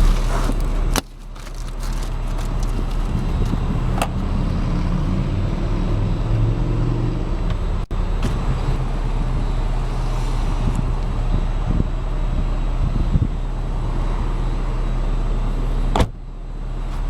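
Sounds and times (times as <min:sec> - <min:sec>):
car engine running: 0:00.0 - 0:05.0.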